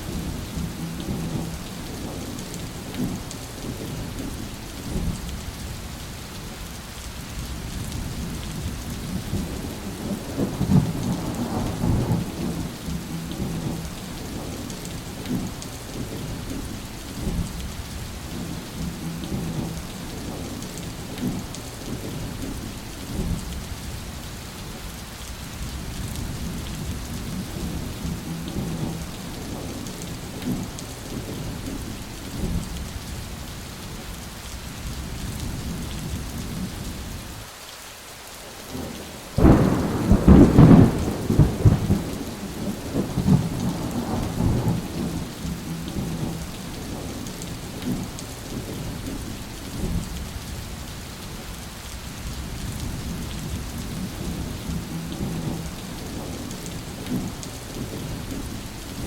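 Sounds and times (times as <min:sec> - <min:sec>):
low rolling thunder: 0:00.0 - 0:05.6, 0:07.5 - 0:23.6, 0:25.6 - 0:32.8, 0:38.7 - 0:50.5, 0:52.3 - 0:59.0
steady rain: 0:00.0 - 0:59.0
loud thunderclap: 0:10.1 - 0:13.8, 0:39.4 - 0:46.4.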